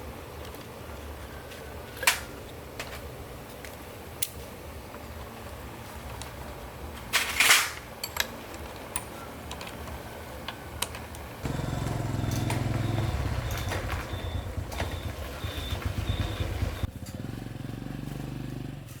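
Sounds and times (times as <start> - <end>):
motorbike engine revving: 11.4 - 19.0.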